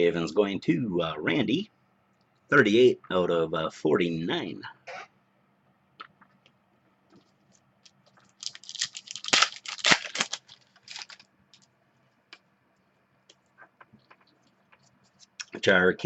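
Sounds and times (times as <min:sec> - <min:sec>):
card packaging crinkling: 0:07.8 - 0:11.7.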